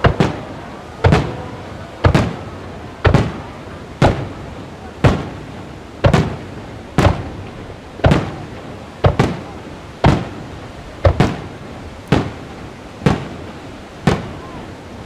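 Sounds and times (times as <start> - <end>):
fireworks booming: 0.0 - 15.0.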